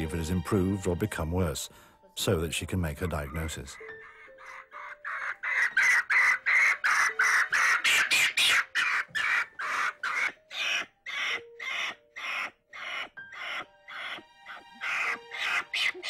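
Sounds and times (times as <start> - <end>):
monkey shrieking: 3.3 - 16.0.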